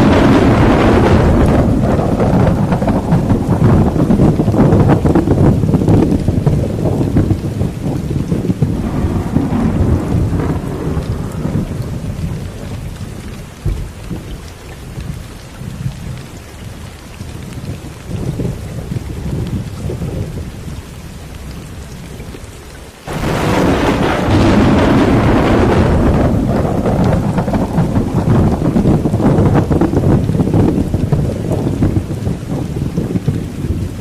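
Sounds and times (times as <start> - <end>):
loud thunder burst: 0.0 - 14.2, 23.1 - 34.0
steady rain: 0.0 - 34.0
thunder rumbling: 0.0 - 34.0.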